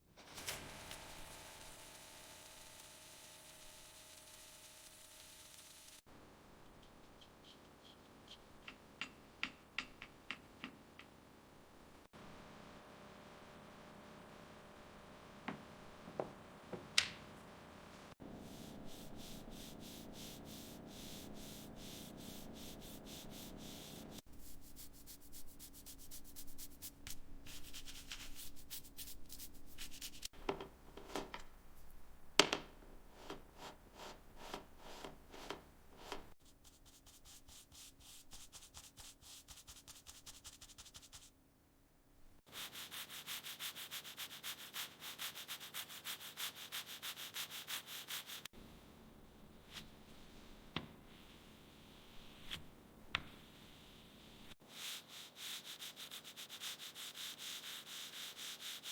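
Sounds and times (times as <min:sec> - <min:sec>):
hand sanding strokes: 0:18.4 - 0:30.3, 0:33.2 - 0:41.3, 0:42.5 - 0:48.5, 0:54.6 - 0:58.9.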